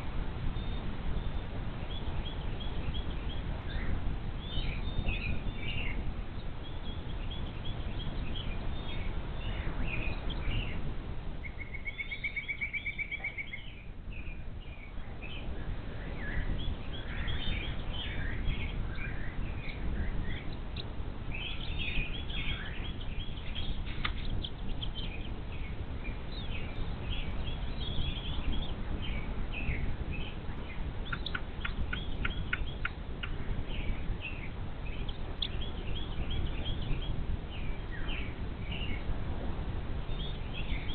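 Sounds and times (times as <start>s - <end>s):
small birds chirping: 0.0s - 39.1s, 40.0s - 40.9s
outdoor background rush: 0.0s - 40.9s
bird trill: 11.4s - 15.5s, 16.1s - 39.0s.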